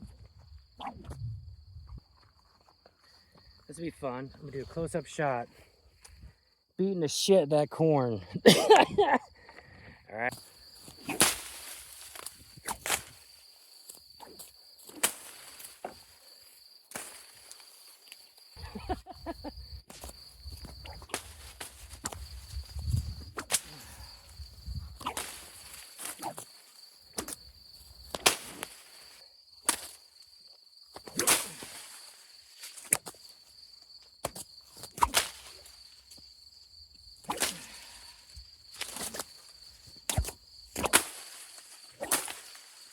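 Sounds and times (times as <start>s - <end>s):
insect trill: 0.0s - 42.9s
whip cracking: 11.0s - 11.8s, 25.0s - 26.4s, 31.0s - 31.7s, 34.9s - 35.4s, 37.2s - 37.6s, 40.1s - 41.2s, 42.0s - 42.4s
whip swishing: 11.0s - 11.8s, 12.6s - 13.1s, 25.0s - 26.4s, 31.0s - 31.7s, 34.2s - 35.4s, 37.2s - 37.6s, 40.1s - 41.2s, 42.0s - 42.4s.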